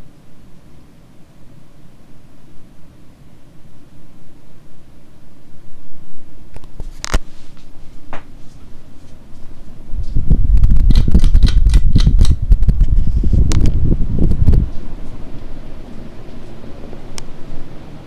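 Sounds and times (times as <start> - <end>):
ceiling fan running: 0.0 - 18.0
wind buffeting microphone: 9.9 - 15.1
sharp clicks: 10.9 - 12.4.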